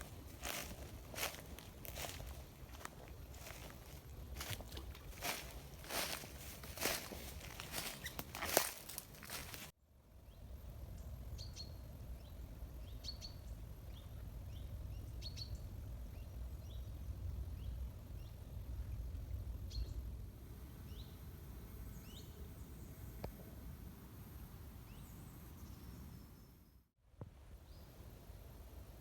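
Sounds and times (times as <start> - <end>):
low outdoor rumble: 0.0 - 25.7
bird chirps and calls: 7.6 - 8.8.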